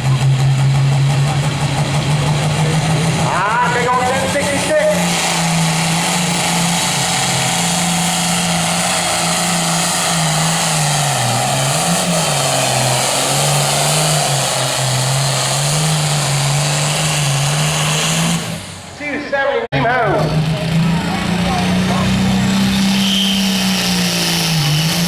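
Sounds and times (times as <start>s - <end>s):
tractor diesel engine droning: 0.0s - 25.0s.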